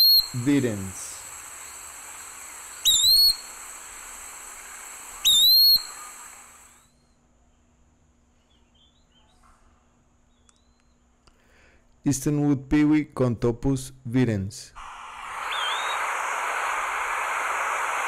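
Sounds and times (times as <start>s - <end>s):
recording hiss: 0.0s - 7.0s, 13.8s - 18.0s
bird whistling call: 0.0s - 7.2s, 14.8s - 16.8s.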